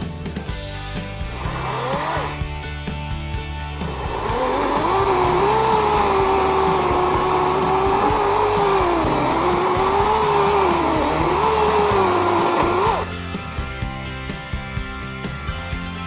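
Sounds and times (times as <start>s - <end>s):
electric chainsaw cutting wood: 0.6s - 13.4s.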